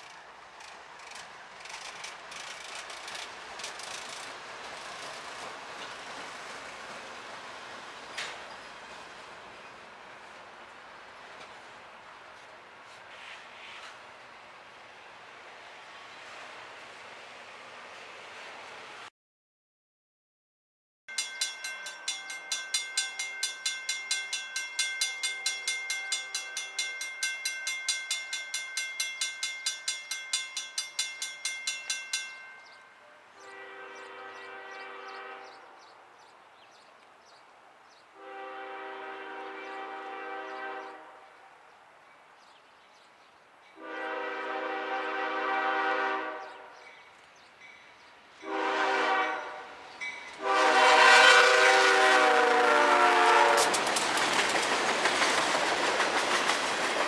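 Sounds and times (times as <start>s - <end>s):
crossing bell ringing: 21.1s - 33.3s, 46.8s - 48.6s, 49.2s - 50.5s
locomotive air horn blasts: 33.1s - 35.8s, 38.2s - 41.4s, 43.8s - 46.8s, 48.4s - 49.8s, 50.4s - 53.8s.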